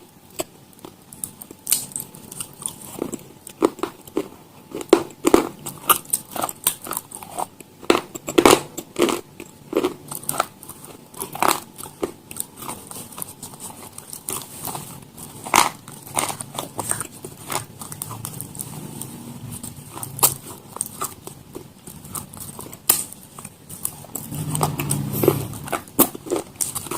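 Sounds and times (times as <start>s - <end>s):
crunchy food being chewed: 0.0s - 26.9s.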